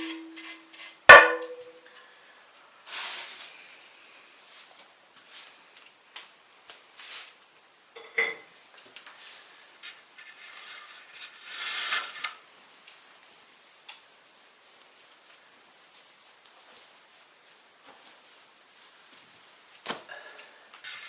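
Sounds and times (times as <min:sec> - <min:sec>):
clattering scrape: 0:00.0 - 0:01.7, 0:09.8 - 0:12.4
sharp ringing clank: 0:01.1 - 0:01.8
kitchenware clinking: 0:08.0 - 0:08.5.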